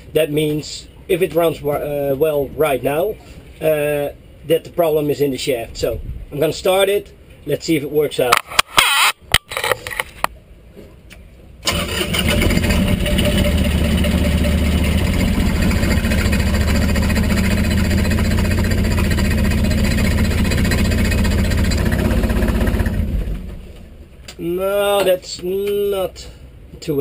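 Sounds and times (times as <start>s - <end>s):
diesel engine starting and running: 11.6s - 24.2s.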